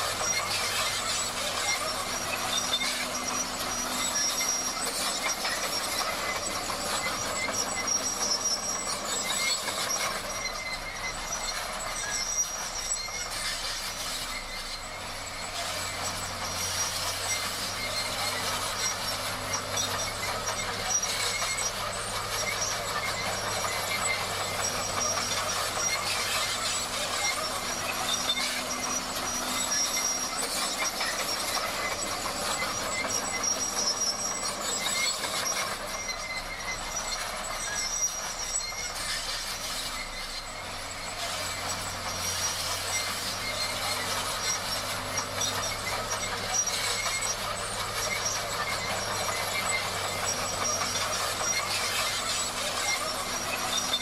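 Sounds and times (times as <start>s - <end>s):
bulldozer engine running: 0.0s - 54.0s
steel tracks squealing: 0.0s - 54.0s.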